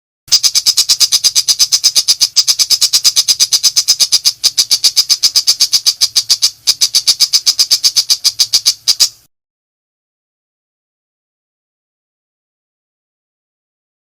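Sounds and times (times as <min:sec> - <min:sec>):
bird harsh rattling call: 0:00.3 - 0:09.3.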